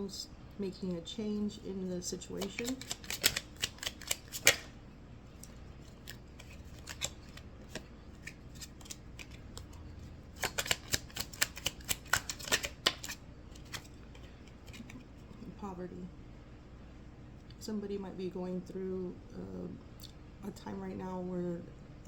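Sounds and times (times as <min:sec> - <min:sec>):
snapping card flicks: 0:02.5 - 0:04.7, 0:10.4 - 0:13.8
light card clicks: 0:06.1 - 0:09.7, 0:10.4 - 0:13.9.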